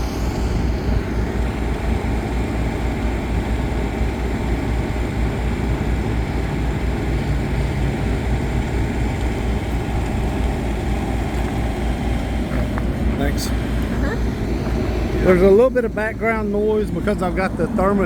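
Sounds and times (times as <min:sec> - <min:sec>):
refrigeration unit engine drone: 0:00.0 - 0:18.0.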